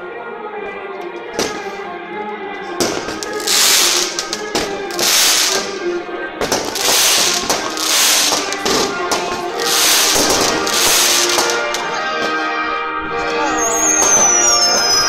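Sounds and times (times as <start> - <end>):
music with held notes: 1.0 - 15.0
fireworks bursting: 2.8 - 12.4, 13.3 - 15.0.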